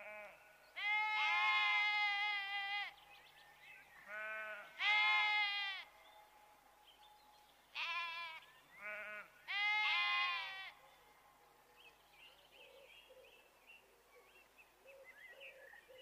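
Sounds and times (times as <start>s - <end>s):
sheep bleating: 0.0s - 2.9s, 4.1s - 5.9s, 7.8s - 10.8s.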